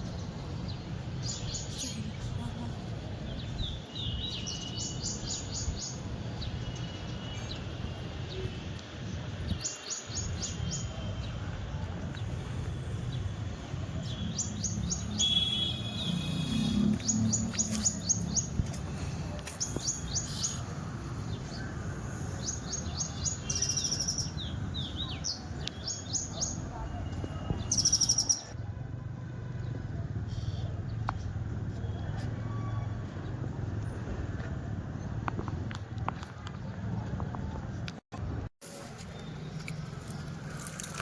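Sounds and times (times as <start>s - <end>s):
small birds chirping: 27.4s - 28.6s.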